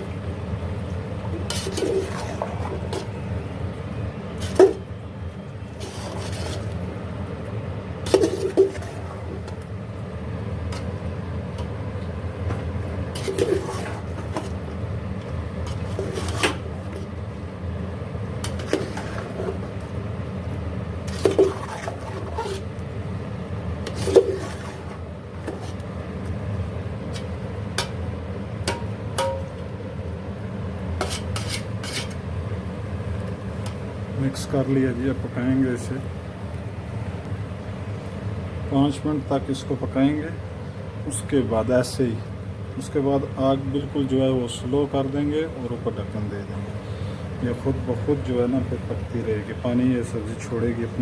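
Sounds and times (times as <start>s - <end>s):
spoon stirring in a pot: 0.0s - 3.3s, 5.7s - 6.8s, 8.1s - 9.7s, 12.6s - 17.2s, 18.4s - 20.0s, 21.0s - 22.8s, 23.8s - 26.4s, 30.9s - 32.3s.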